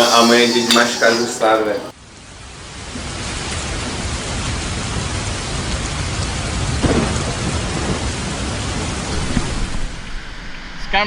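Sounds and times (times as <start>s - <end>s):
heavy rain: 0.0s - 10.9s
thunder rumble: 2.9s - 10.9s.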